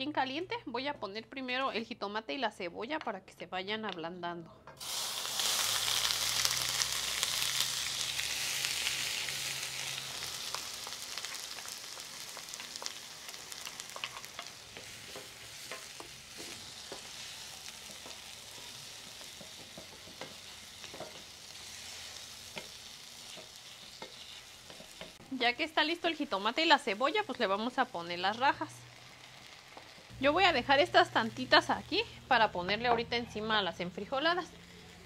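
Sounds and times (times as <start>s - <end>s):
vegetables sizzling in oil: 4.8s - 35.0s
wooden spoon knocking and scraping: 17.8s - 21.3s.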